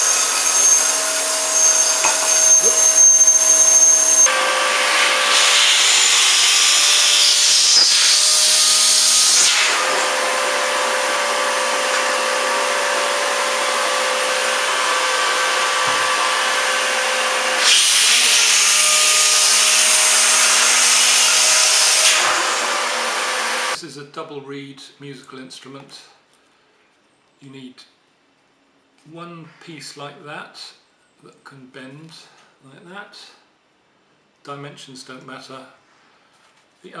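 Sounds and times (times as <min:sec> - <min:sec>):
vacuum cleaner hissing: 0:00.0 - 0:23.8.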